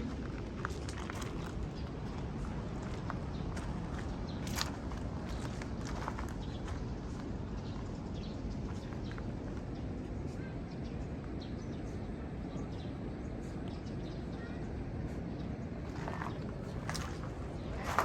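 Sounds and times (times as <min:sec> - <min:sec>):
faint footsteps: 0:00.0 - 0:07.8, 0:15.8 - 0:18.0.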